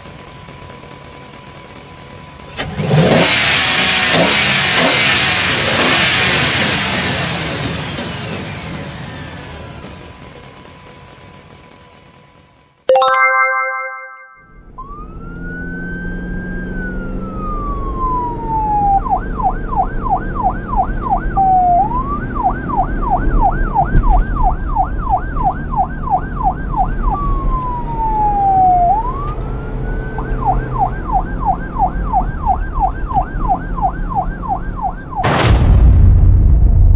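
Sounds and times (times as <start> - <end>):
electronic siren wailing and yelping: 14.8 - 35.3.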